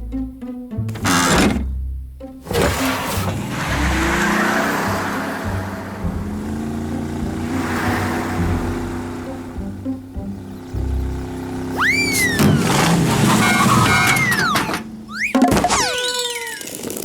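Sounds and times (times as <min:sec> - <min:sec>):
background music: 0:00.0 - 0:12.5
noisy vehicle-like sound effect: 0:02.4 - 0:17.0.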